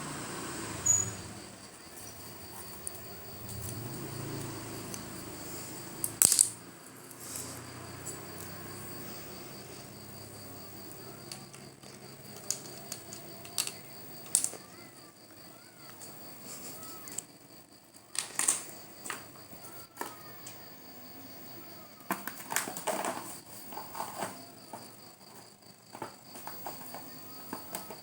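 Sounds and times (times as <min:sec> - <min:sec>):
high-pitched insect trill: 0:00.1 - 0:22.0.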